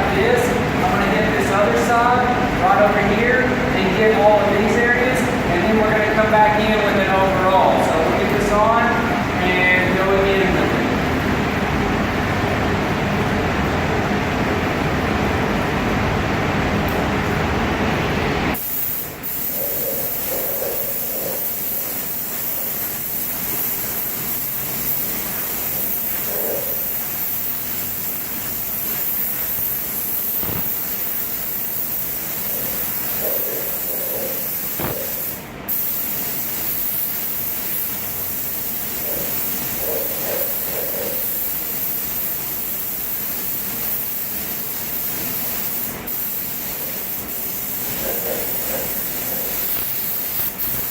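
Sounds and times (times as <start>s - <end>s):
exhaust fan running: 0.0s - 50.9s
spray gun hissing: 18.5s - 50.9s.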